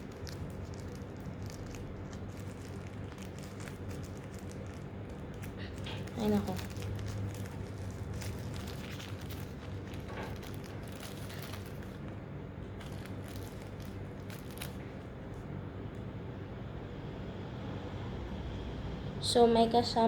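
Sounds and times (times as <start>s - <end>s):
plastic packaging crinkling: 0.0s - 15.5s
low room hum: 0.0s - 20.0s.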